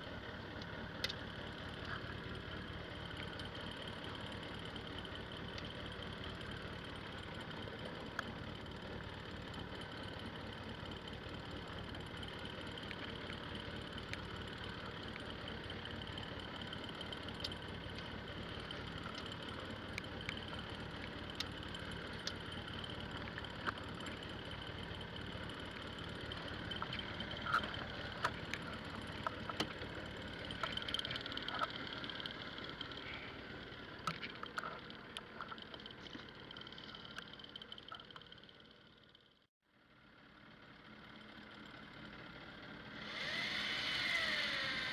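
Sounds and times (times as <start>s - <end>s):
engine humming: 0.0s - 39.4s, 40.3s - 44.9s
sharp clicks and knocks: 26.6s - 32.3s, 34.0s - 38.3s.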